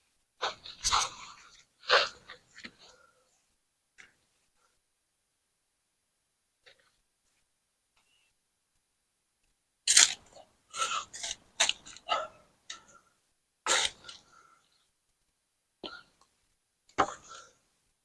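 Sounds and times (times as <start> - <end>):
shovel scraping soil: 9.9 - 10.2.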